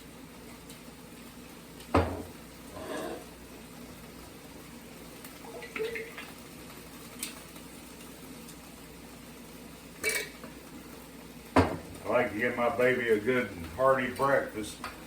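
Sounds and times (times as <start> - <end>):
cookware knock: 2.0 - 2.3, 11.6 - 11.8
cookware clatter and clinks: 10.0 - 10.4.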